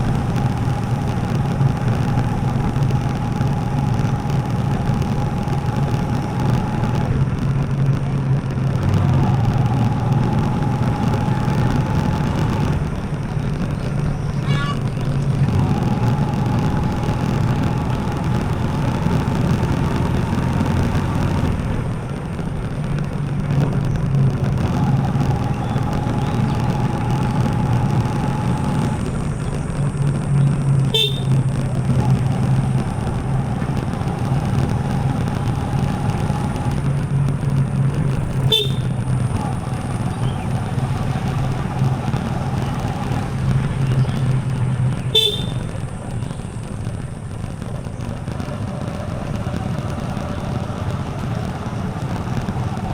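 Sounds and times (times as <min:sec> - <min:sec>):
motorcycle engine running: 0:00.0 - 0:52.9
high steady tone: 0:31.0 - 0:31.4.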